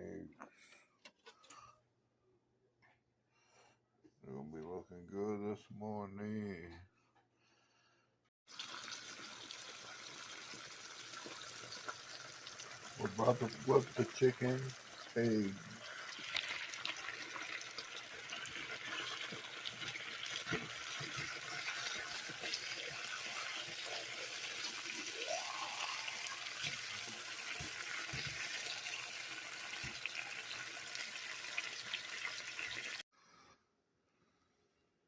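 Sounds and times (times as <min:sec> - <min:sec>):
eggs sizzling in a frying pan: 0:08.5 - 0:33.0.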